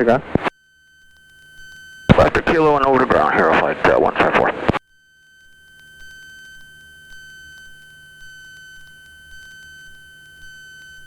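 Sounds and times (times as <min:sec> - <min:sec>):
steady high-pitched tone: 0:01.6 - 0:04.8.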